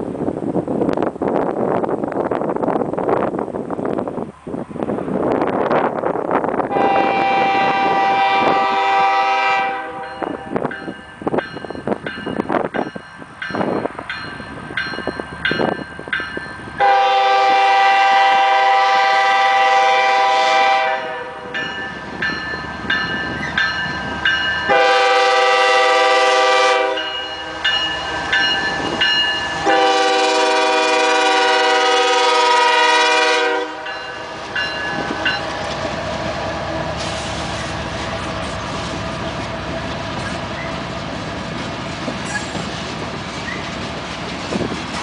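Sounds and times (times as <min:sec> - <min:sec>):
train rumbling: 0:00.0 - 0:45.0
locomotive air horn blasts: 0:06.7 - 0:10.7, 0:16.8 - 0:21.6, 0:24.6 - 0:27.7, 0:29.6 - 0:34.4.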